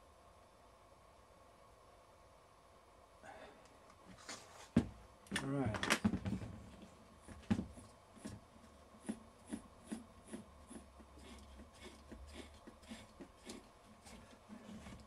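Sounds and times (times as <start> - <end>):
low steady hum: 0.0 - 15.0
hand tools clicking and rubbing: 9.0 - 15.0.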